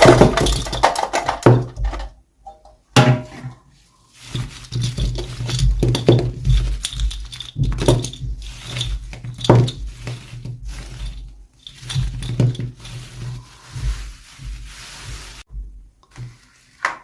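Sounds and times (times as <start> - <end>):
plastic packaging rustling: 3.9 - 15.5.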